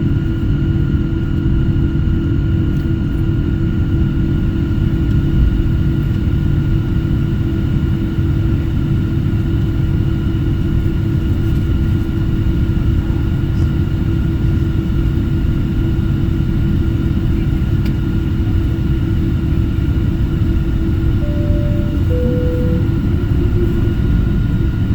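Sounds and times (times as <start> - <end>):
airplane engines rumbling: 0.0 - 24.9
high even whines: 20.6 - 24.9.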